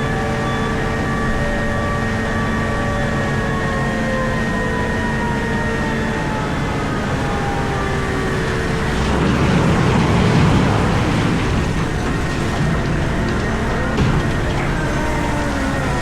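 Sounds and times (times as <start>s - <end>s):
hydraulic whines sliding down: 0.0s - 16.0s
excavator engine rumble: 6.2s - 16.0s.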